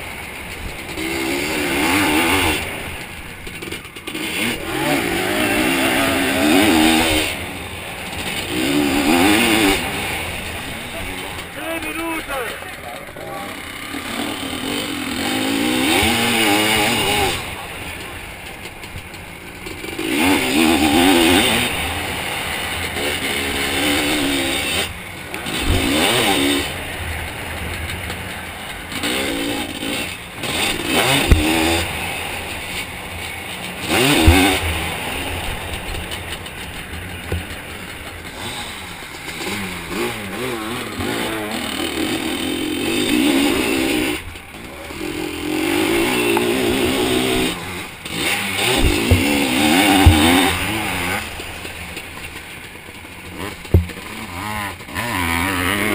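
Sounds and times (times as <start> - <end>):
two-stroke engine revving: 0.0 - 55.9
sharp knocks over bumps: 30.6 - 31.9, 33.8 - 35.0, 35.8 - 39.4, 48.2 - 51.3, 53.4 - 54.3.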